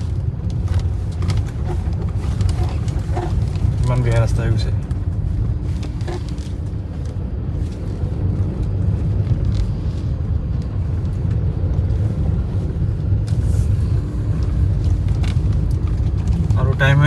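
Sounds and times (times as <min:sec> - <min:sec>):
car cabin road rumble: 0:00.0 - 0:17.0.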